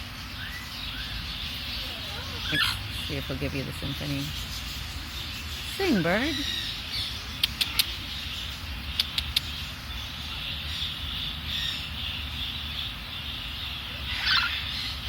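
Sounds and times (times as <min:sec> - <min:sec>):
sharp clicks: 0:07.4 - 0:08.0, 0:09.0 - 0:09.5.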